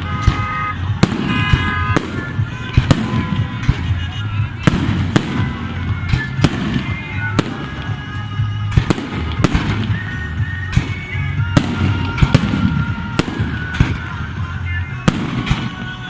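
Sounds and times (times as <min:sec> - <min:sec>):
whistling shells: 0:00.0 - 0:14.5
fireworks bangs and cracks: 0:00.0 - 0:16.0.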